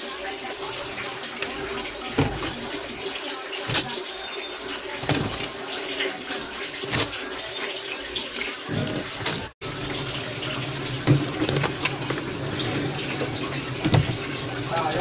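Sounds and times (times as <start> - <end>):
washing machine humming: 0.0 - 15.0
water sloshing in washing machine: 0.0 - 15.0
washing machine knocks: 1.5 - 3.0, 5.0 - 5.6, 12.9 - 15.0.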